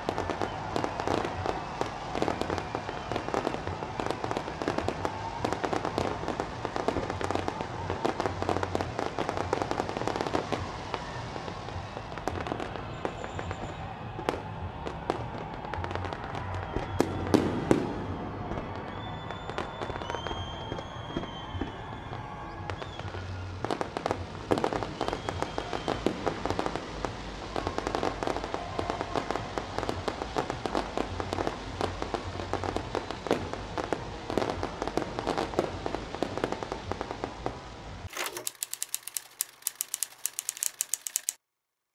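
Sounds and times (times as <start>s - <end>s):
fireworks bangs and crackling: 0.0s - 41.4s
fast sharp clicks: 38.1s - 41.4s.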